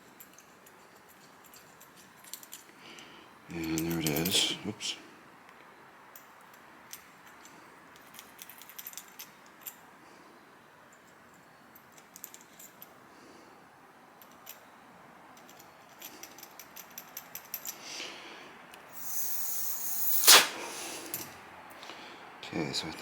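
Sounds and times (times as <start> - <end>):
small metal parts clicking and rattling: 0.0 - 2.7, 6.2 - 9.8, 10.9 - 12.9, 14.2 - 14.7, 15.4 - 17.8
brief hiss: 19.0 - 21.3.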